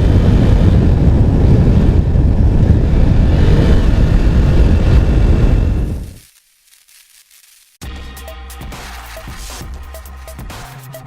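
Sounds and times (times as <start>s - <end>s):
wind rumble on microphone: 0.0s - 6.2s.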